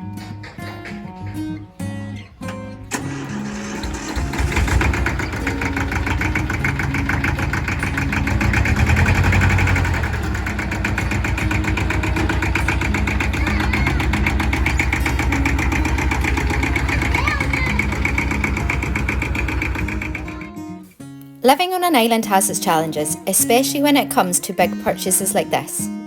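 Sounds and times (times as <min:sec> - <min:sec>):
tractor engine idling: 0:00.0 - 0:20.5.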